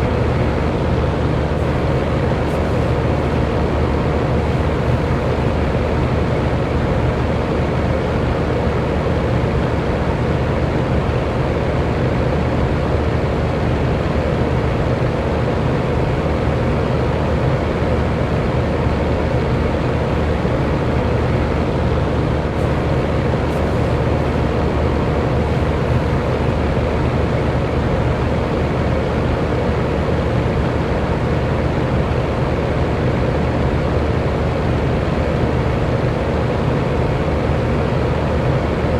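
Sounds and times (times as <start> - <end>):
electric fan air rushing: 0.0 - 38.9
faint motor hum: 0.0 - 38.9.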